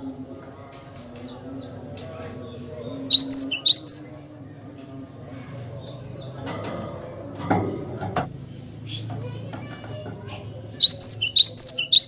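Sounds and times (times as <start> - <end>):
bird sharp high chirps: 3.1 - 4.1, 10.8 - 12.0.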